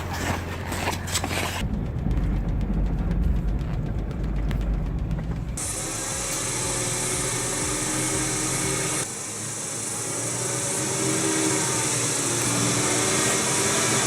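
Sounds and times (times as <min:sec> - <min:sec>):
low rumble: 0:01.4 - 0:09.1
power saw cutting wood: 0:05.6 - 0:14.0.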